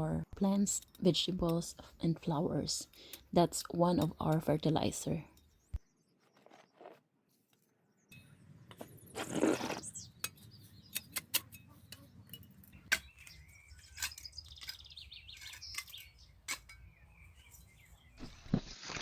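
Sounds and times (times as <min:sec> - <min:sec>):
low steady background: 0:00.0 - 0:06.4
small birds chirping: 0:07.6 - 0:18.6.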